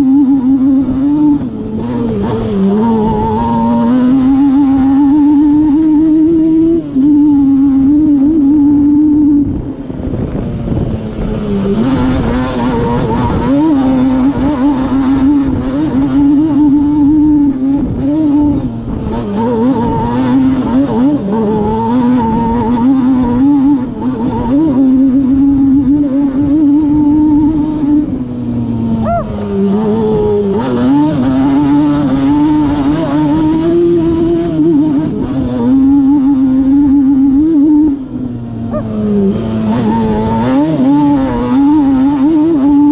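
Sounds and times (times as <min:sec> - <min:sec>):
two-stroke engine revving: 0:00.0 - 0:42.9.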